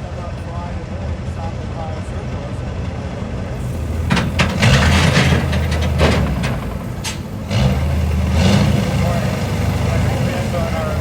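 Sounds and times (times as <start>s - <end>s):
truck engine running: 0.6s - 11.0s
knocks and rattles: 3.7s - 8.2s.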